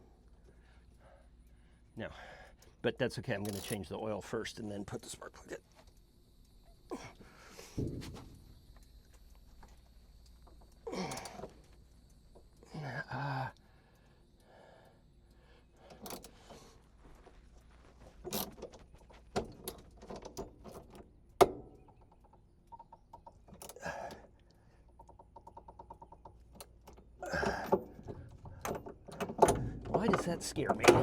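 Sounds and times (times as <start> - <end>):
tools and metal parts clinking: 3.4 - 3.9, 18.1 - 23.8, 24.9 - 31.0.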